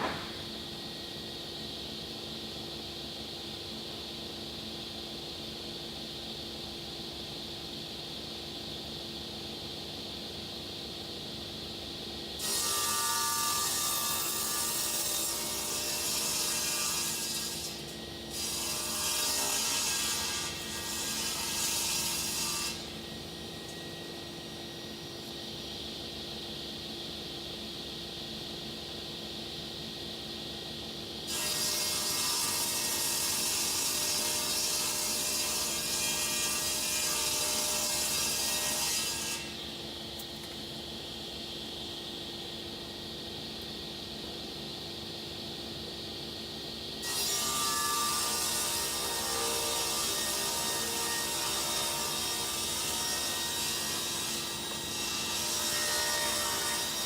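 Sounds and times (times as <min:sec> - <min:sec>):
machine cutting wood board: 0:00.0 - 0:00.5.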